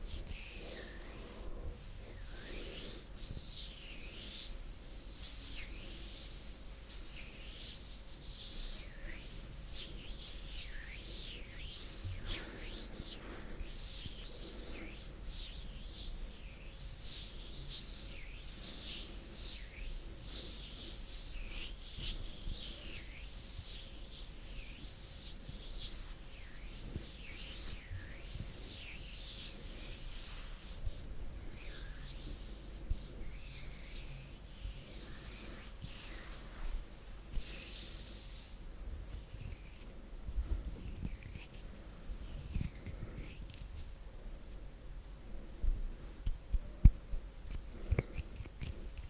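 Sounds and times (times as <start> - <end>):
hands rubbing together: 2.2 - 39.8.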